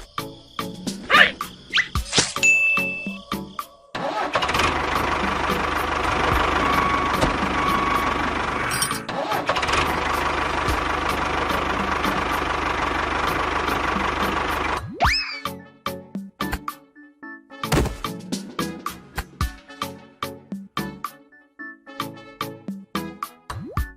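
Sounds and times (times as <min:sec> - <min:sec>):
engine running: 0:04.0 - 0:14.9.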